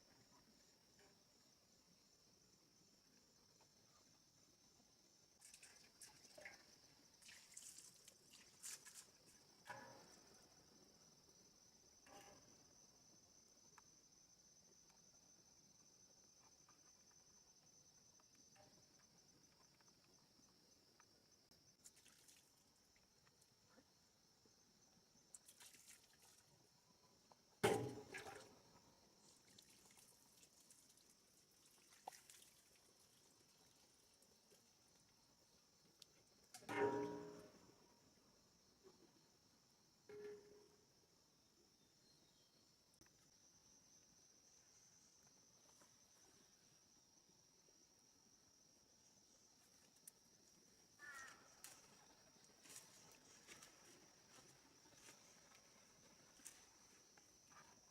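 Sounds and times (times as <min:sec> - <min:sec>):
water splashing: 0:31.6 - 0:33.1.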